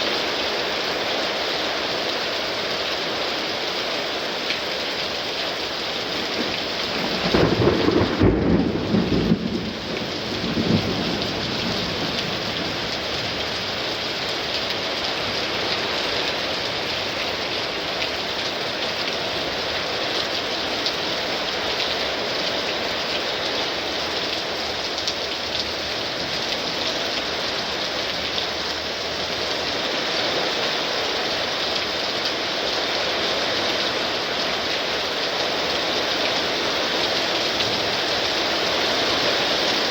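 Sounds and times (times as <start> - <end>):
heavy rain pouring: 0.0 - 39.9
thunderclap and rumble: 6.4 - 13.4.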